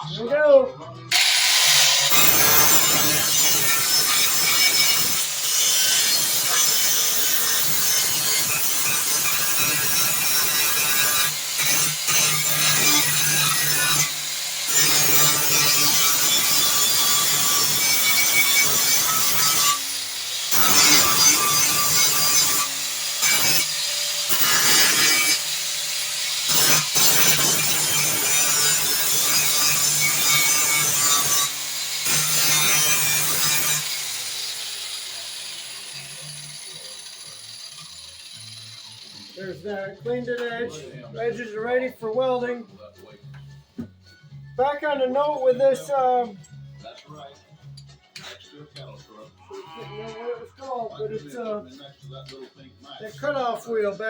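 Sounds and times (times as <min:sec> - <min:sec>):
grinder grinding steel: 0:01.1 - 0:40.1.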